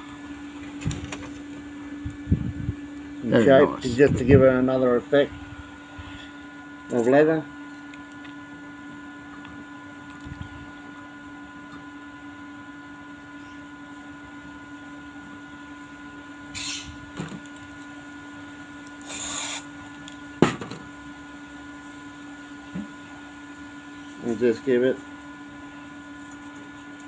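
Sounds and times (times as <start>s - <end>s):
workshop machine hum: 0.0s - 27.0s
short hissing bursts: 19.0s - 19.6s.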